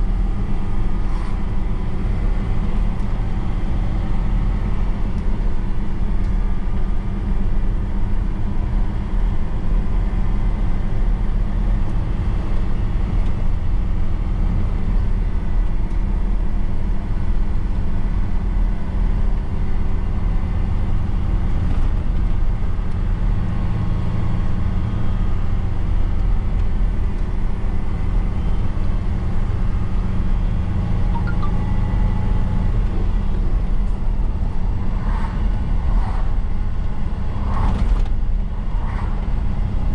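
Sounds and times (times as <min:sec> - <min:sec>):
road and tyre noise: 0:00.0 - 0:39.9
truck engine humming: 0:27.8 - 0:37.3.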